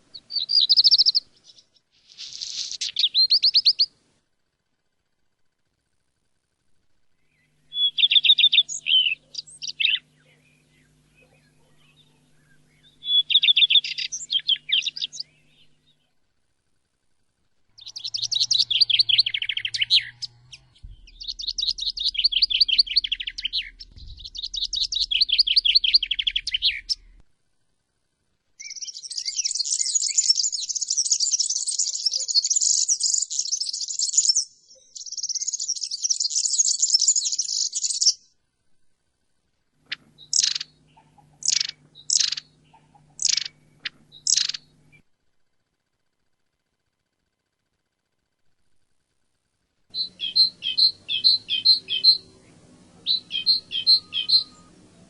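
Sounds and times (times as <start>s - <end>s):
bird calls: 0.0s - 3.9s, 7.2s - 16.2s, 17.7s - 27.2s, 28.6s - 38.3s, 39.8s - 45.0s, 49.9s - 55.0s
songbirds trilling: 0.0s - 4.0s, 7.1s - 16.3s, 17.7s - 27.2s, 28.6s - 38.3s, 39.8s - 45.1s, 49.9s - 55.0s.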